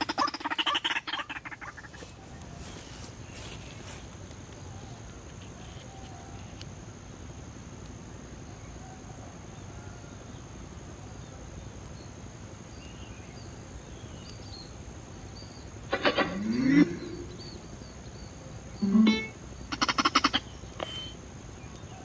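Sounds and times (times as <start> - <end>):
insects droning: 0.0 - 22.0
outdoor background noise: 0.0 - 22.0
faint high chirps: 15.3 - 22.0.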